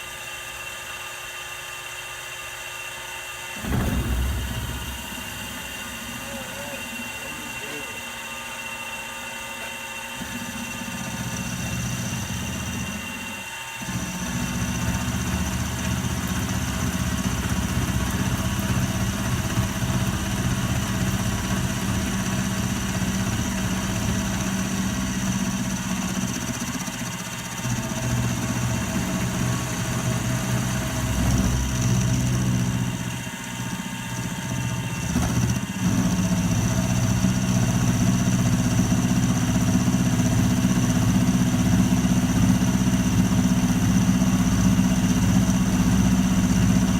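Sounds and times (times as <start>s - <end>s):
machine motor humming: 3.6s - 13.4s.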